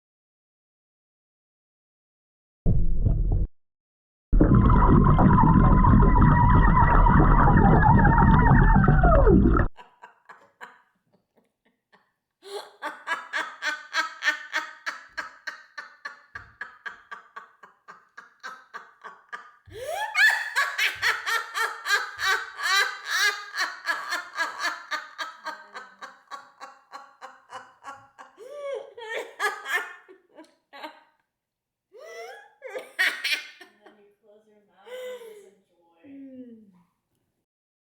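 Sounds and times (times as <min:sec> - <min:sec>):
hearty laughter: 0:09.8 - 0:31.1, 0:32.0 - 0:34.0.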